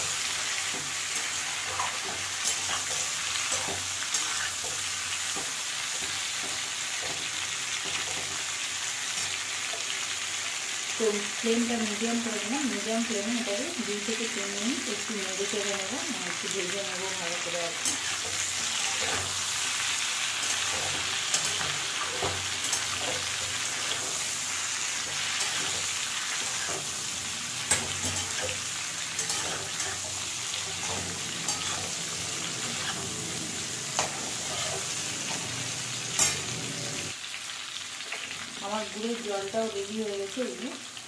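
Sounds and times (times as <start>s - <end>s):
mango pieces sizzling in oil: 0.0s - 41.0s
metal spatula scraping a pan: 0.1s - 9.9s, 17.8s - 36.6s.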